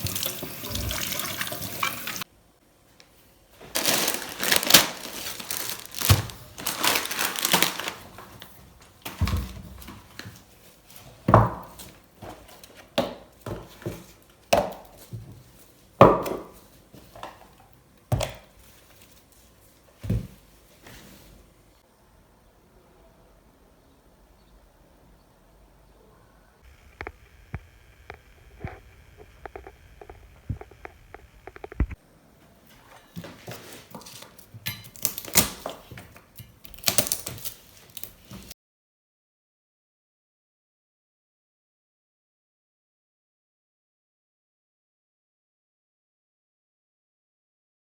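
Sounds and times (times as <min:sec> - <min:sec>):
small hard objects clattering: 0:03.6 - 0:08.5.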